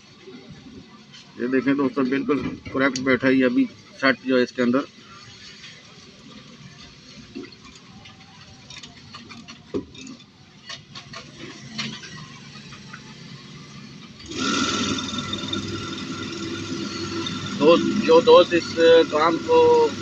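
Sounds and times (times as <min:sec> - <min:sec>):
coil winding machine whine: 0:14.2 - 0:20.0.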